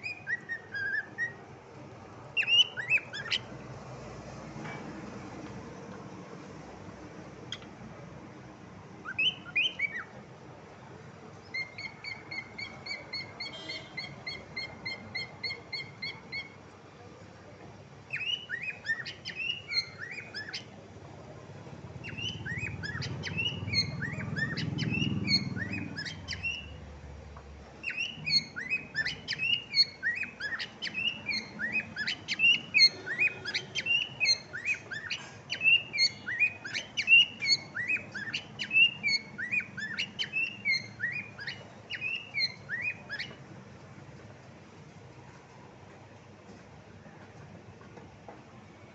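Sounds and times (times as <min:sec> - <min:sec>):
cockatiel chirping: 0:00.0 - 0:01.4, 0:02.4 - 0:03.5, 0:09.0 - 0:10.1, 0:11.5 - 0:16.6, 0:18.1 - 0:20.8, 0:22.0 - 0:26.8, 0:27.8 - 0:43.4.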